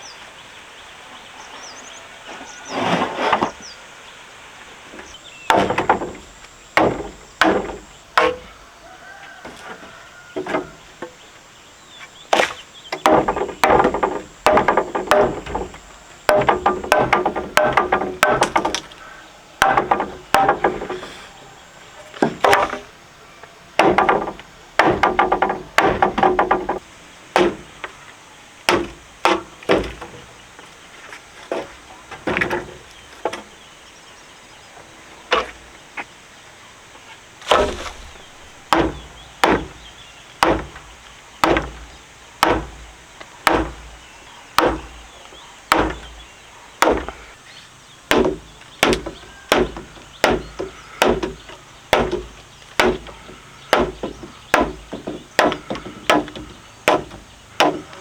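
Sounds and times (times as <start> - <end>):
blade chopping wood: 5.0 - 8.6, 12.3 - 21.2, 22.1 - 22.9, 23.8 - 26.8, 27.4 - 27.9, 28.7 - 30.2, 37.4 - 45.1, 45.7 - 47.2, 48.1 - 58.0.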